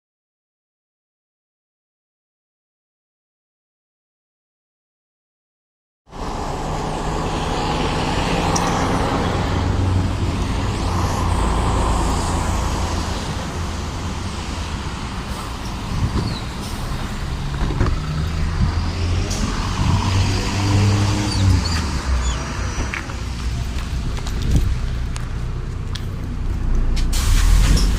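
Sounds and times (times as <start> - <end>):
bus diesel engine running: 6.1 - 27.9.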